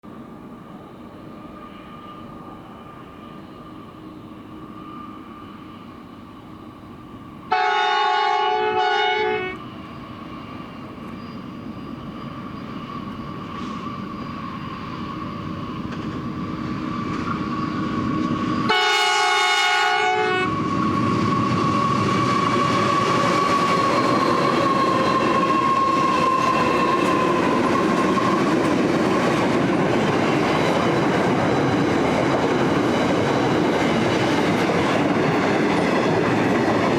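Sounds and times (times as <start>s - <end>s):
locomotive horn blasts: 7.5s - 9.6s, 18.7s - 20.5s
freight wagons rumbling on rails: 10.0s - 36.9s.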